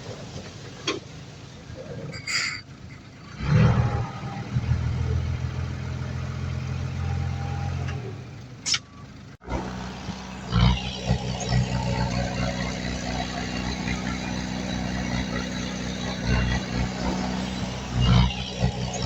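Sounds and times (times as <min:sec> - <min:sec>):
diesel engine running: 0:02.7 - 0:19.0.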